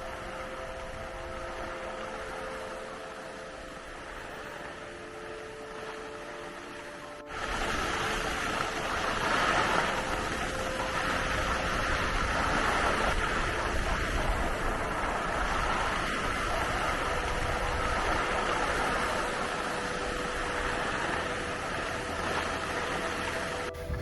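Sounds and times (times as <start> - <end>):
skis sliding over snow: 4.0 - 24.0
wind rushing: 23.7 - 24.0.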